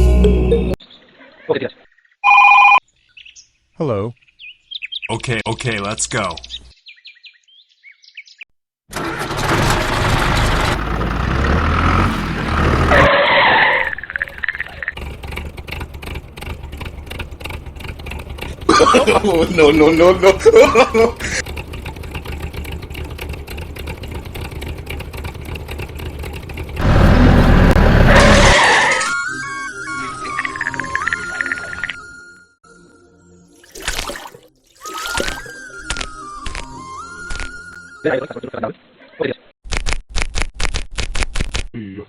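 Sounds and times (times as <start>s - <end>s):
music: 0.0s - 0.8s, 29.1s - 34.3s, 34.9s - 38.3s
engine humming: 8.9s - 13.1s, 14.0s - 29.0s.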